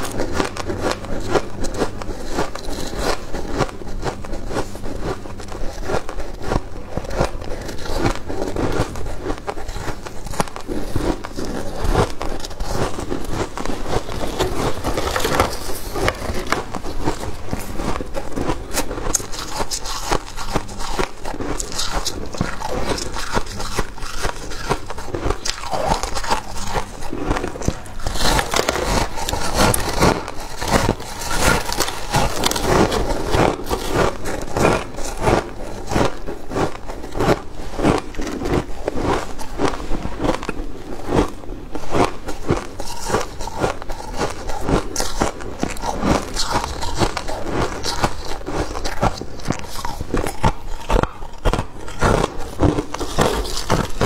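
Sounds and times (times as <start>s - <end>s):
frost crunching as it is chewed: 0.0s - 54.0s.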